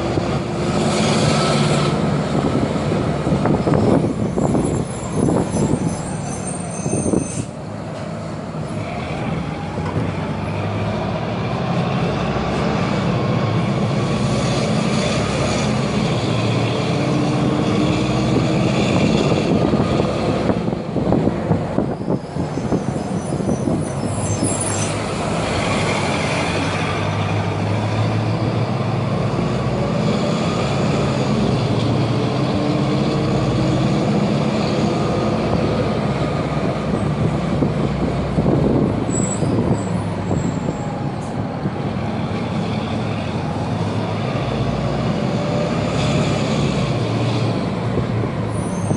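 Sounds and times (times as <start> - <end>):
bus diesel engine running: 0.0 - 48.9.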